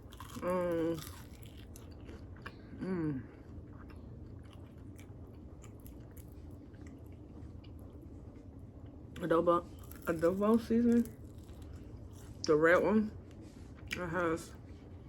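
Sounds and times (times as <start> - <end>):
person chewing food: 0.0 - 9.0, 11.0 - 12.5.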